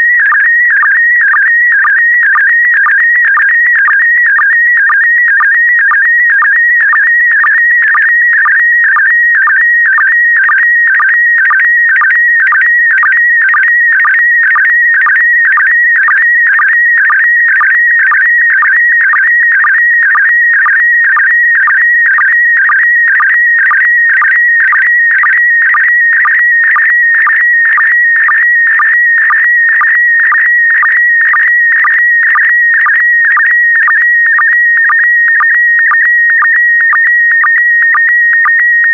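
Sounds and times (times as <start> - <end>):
warbling high tone signal: 0.0 - 38.9.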